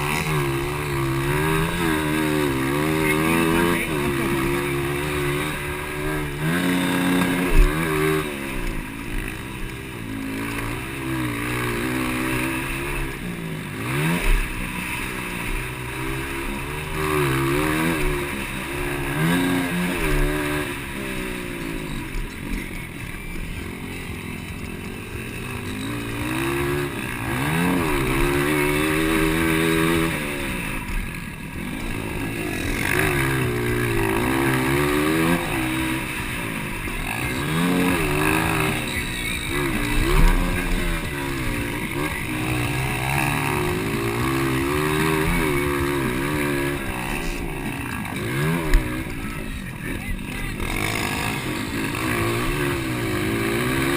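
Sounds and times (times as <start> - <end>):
motocross bike engines revving: 0.0 - 53.9.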